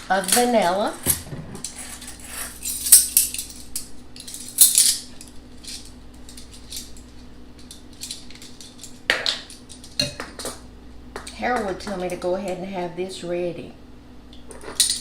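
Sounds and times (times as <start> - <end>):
utensils clinking against a bowl: 0.0 - 10.6, 14.4 - 15.0.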